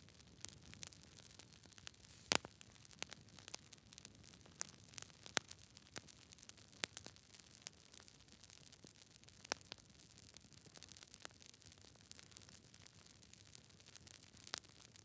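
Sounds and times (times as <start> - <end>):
campfire popping: 0.0 - 15.0
campfire hissing: 1.8 - 2.6.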